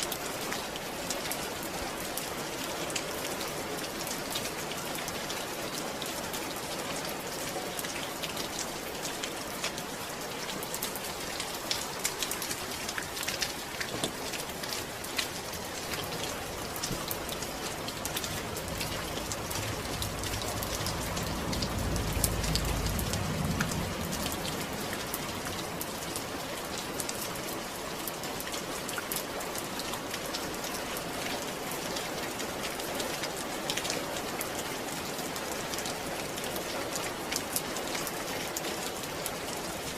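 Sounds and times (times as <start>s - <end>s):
rain pattering on surfaces: 0.0s - 39.9s
low rumble: 17.8s - 25.8s.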